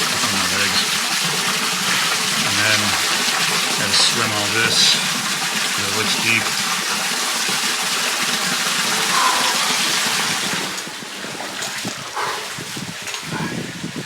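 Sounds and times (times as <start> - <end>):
creek water rushing: 0.0 - 14.0
person swimming splashing: 8.9 - 10.7.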